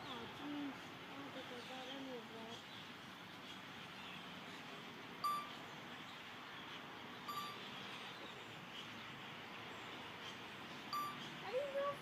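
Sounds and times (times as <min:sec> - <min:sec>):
steady outdoor hiss: 0:00.0 - 0:12.0
clear chime notes: 0:05.2 - 0:05.5, 0:07.3 - 0:07.6, 0:11.0 - 0:11.2
faint chirps: 0:05.2 - 0:05.6, 0:07.2 - 0:09.0, 0:10.9 - 0:11.9.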